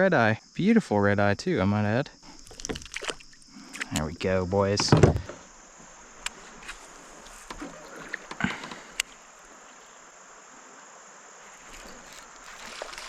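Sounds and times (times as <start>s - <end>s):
faint steady hiss: 0.0s - 13.0s
rustling splash-like sounds: 11.4s - 13.0s.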